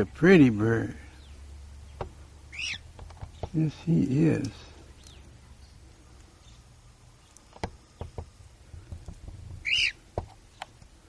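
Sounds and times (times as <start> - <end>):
cockatiel chirp: 2.5 - 2.8, 9.6 - 10.0.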